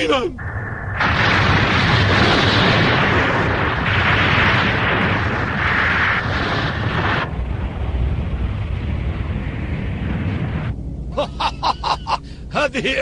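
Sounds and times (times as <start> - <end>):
low rumble: 0.2 - 13.0
cartoon explosion blast: 0.4 - 10.7.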